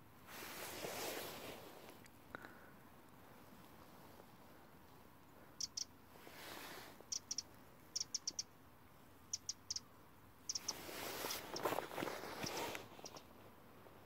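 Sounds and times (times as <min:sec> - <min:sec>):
small bird chirping: 0:05.5 - 0:06.0, 0:07.0 - 0:08.6, 0:09.2 - 0:13.3.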